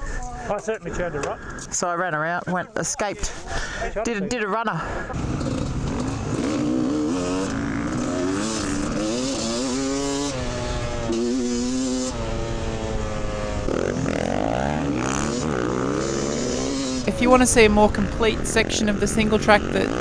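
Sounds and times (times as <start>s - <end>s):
dirt bike engine revving: 5.1s - 20.0s.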